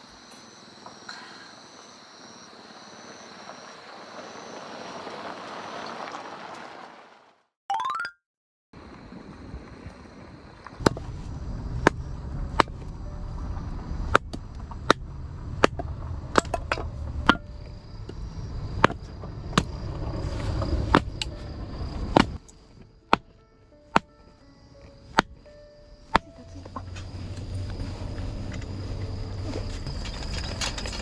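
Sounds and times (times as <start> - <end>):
low rumble: 8.8 - 22.4, 26.4 - 31.0
light background music: 22.4 - 29.1.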